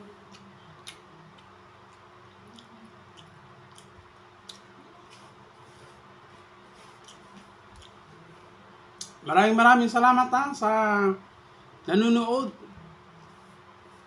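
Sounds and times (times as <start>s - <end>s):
soft chewing: 0.0s - 9.2s
faint hum: 0.0s - 14.0s.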